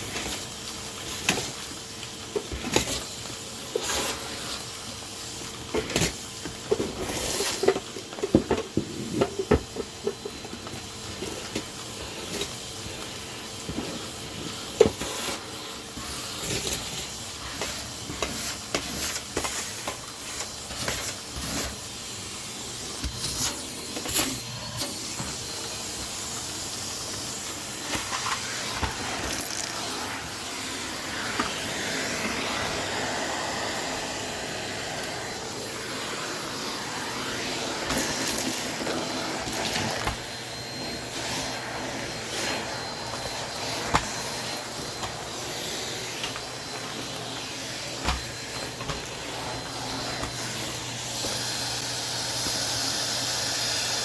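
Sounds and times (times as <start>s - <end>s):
vacuum cleaner running: 0.0s - 54.0s
debris clicking in vacuum nozzle: 27.9s - 30.2s.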